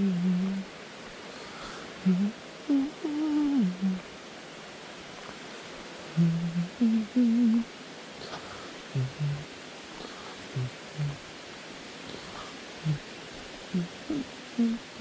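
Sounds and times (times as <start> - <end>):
person humming a tune: 0.0 - 0.7, 1.9 - 4.0, 6.1 - 11.2, 12.1 - 13.0, 13.7 - 15.0
steady background hiss: 0.0 - 15.0.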